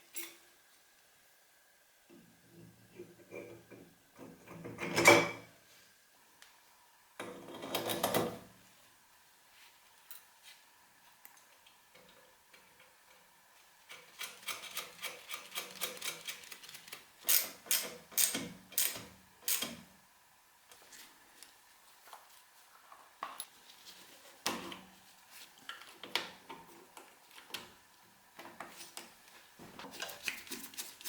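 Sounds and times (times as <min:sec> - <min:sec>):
rustling and scraping: 0:20.8 - 0:26.0.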